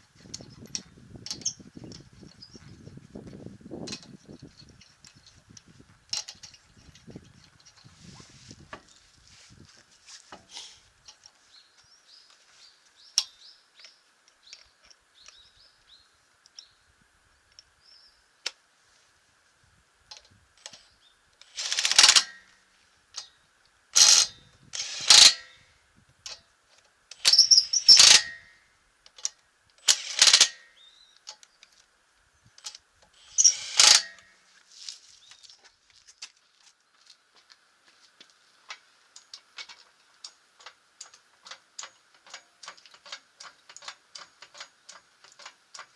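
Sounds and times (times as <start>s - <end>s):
impact wrench bursts: 21.4s - 22.5s, 24.0s - 25.6s, 27.2s - 28.5s, 29.8s - 30.8s, 33.2s - 34.3s
tools and nuts clinking: 32.6s - 34.3s.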